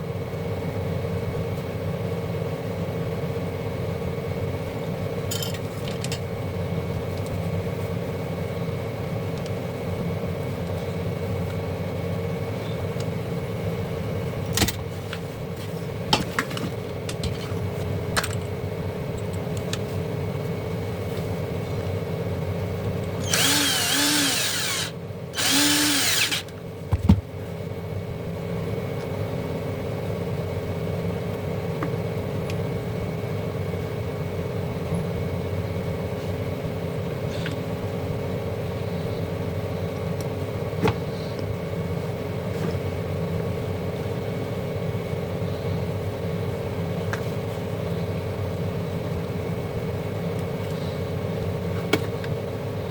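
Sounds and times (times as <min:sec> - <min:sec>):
steady hum: 0:04.6 - 0:52.9
small electric motor whirring: 0:23.2 - 0:26.5.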